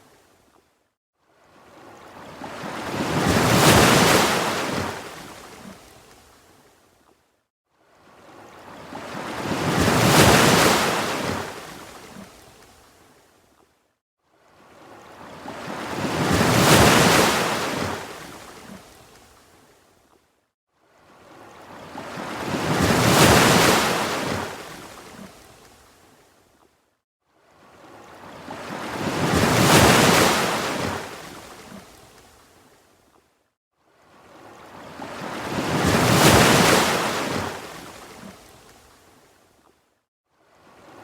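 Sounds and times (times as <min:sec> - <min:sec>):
ocean waves washing: 0:28.2 - 0:31.8, 0:34.7 - 0:38.3.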